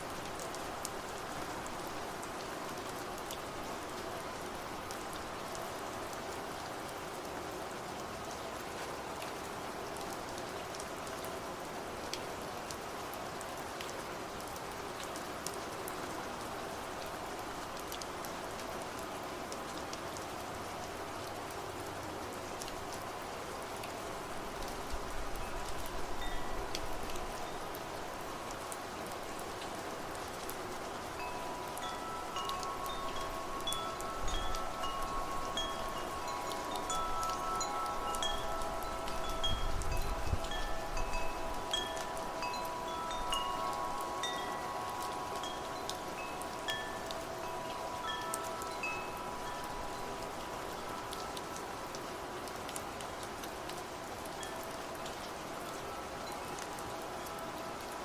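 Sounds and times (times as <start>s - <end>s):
soft low wind gusts: 0.0s - 58.0s
steady rainfall: 0.0s - 58.0s
wind chimes ringing: 25.4s - 27.7s, 31.0s - 51.8s, 54.4s - 58.0s.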